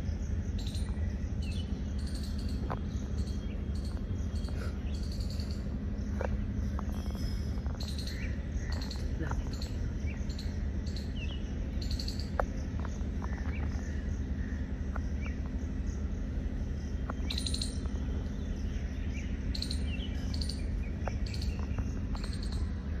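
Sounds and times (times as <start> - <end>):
small birds chirping: 0.0 - 23.0
steady low hum: 0.0 - 23.0.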